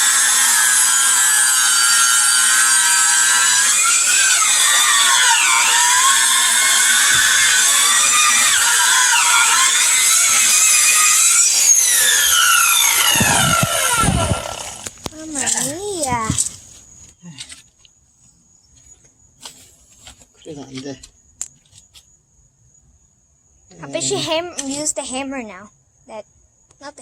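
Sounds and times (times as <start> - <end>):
chainsaw cutting wood: 0.0 - 16.4.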